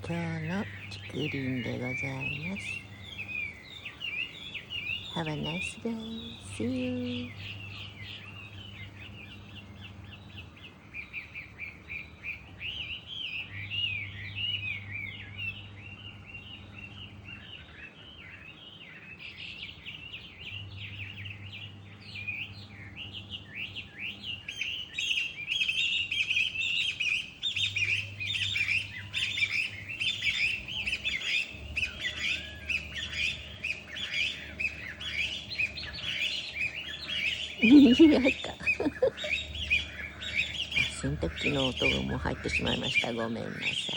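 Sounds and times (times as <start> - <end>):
small birds chirping and twittering: 0.0 - 43.9
washing machine hum: 27.3 - 43.9.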